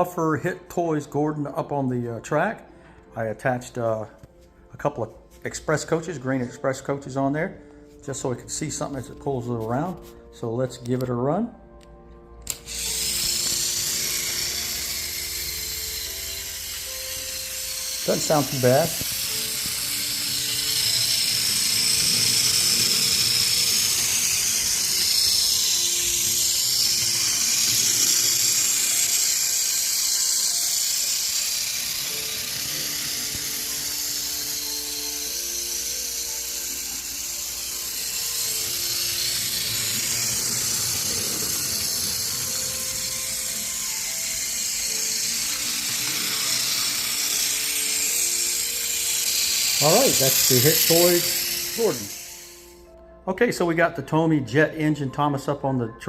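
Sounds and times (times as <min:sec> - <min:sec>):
simple tune of held notes: 0:11.7 - 0:53.3
toy train motor whirring: 0:12.4 - 0:52.9.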